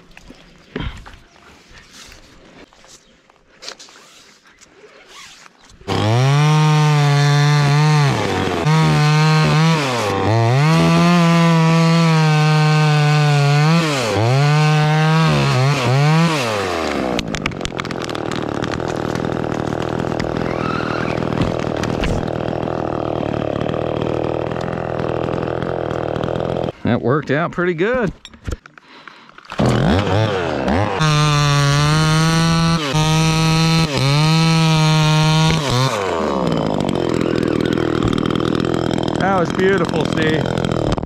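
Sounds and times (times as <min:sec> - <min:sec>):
chainsaw revving through a cut: 0:05.9 - 0:26.8, 0:29.5 - 0:41.0.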